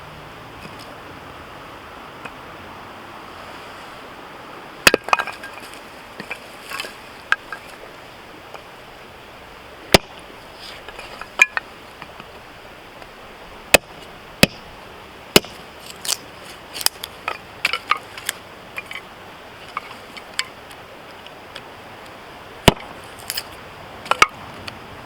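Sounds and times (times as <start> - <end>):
hatchet striking firewood: 4.8 - 7.6, 9.9 - 12.2, 13.7 - 16.2, 16.8 - 19.0, 22.6 - 23.5, 24.1 - 24.4.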